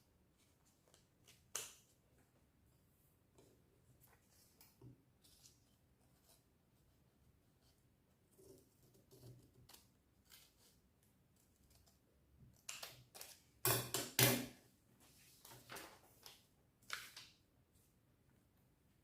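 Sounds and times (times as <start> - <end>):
paper rustling: 15.0 - 17.4.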